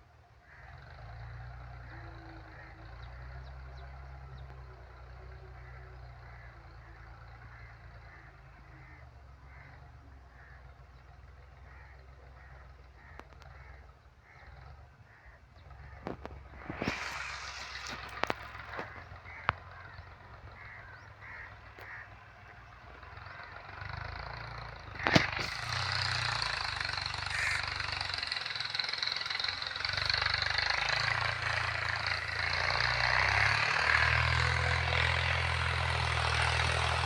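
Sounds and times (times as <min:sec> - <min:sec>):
tractor engine rumbling: 0:00.0 - 0:37.0
crow cawing: 0:00.4 - 0:03.4, 0:05.5 - 0:10.8, 0:11.6 - 0:33.6
bird calling: 0:11.6 - 0:32.8.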